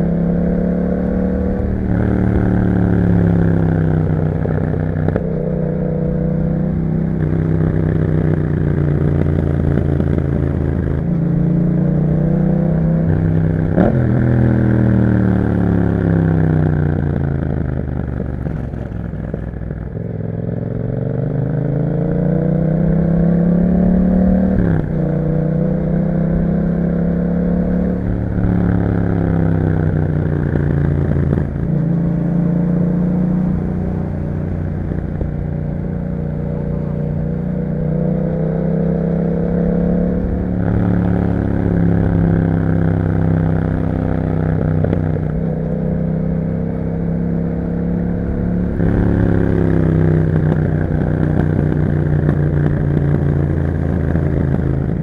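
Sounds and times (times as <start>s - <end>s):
motorcycle engine revving through gears: 0.0s - 55.0s.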